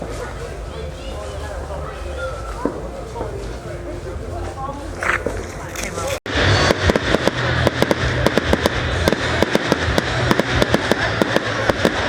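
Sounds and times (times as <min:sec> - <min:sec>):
fireworks bangs and crackles: 0:06.3 - 0:12.0
low rumble: 0:06.3 - 0:12.0.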